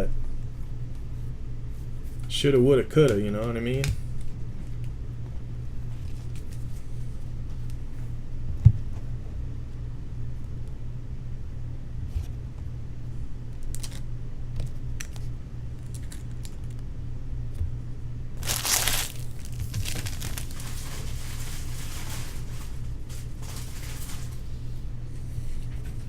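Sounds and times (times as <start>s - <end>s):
low electrical hum: 0.0s - 26.0s
packaging tearing and crinkling: 18.4s - 24.4s.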